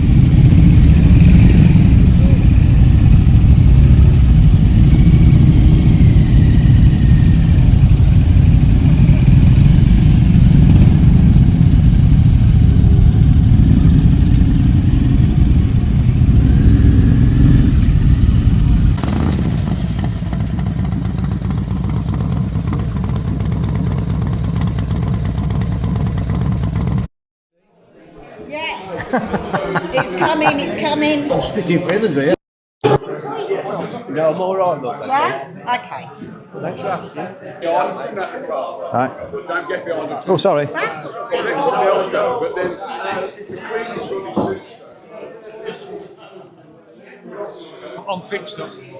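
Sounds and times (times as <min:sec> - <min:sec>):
motorcycle engines: 0:00.0 - 0:27.1.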